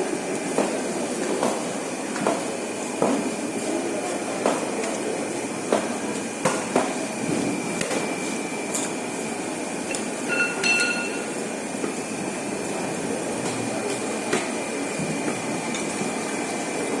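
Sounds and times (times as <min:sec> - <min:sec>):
noisy working background: 0:00.0 - 0:17.0
short high beep: 0:10.3 - 0:11.3.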